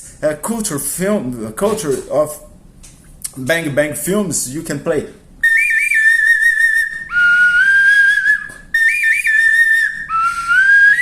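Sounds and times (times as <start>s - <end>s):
wooden bird-call whistle tune: 5.4s - 11.0s.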